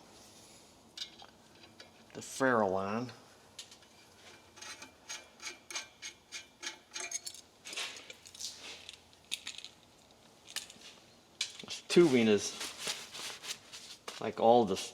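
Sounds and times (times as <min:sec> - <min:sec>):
small metal clicks and scrapes: 0:03.6 - 0:10.8
rubbing scrape on metal tubing: 0:04.2 - 0:06.9.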